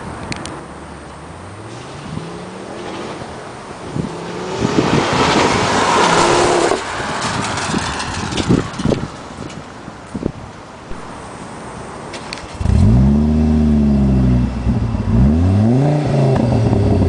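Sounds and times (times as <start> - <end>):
car engine revving: 1.3 - 8.6, 12.6 - 17.0
exhaust pops: 1.7 - 10.3.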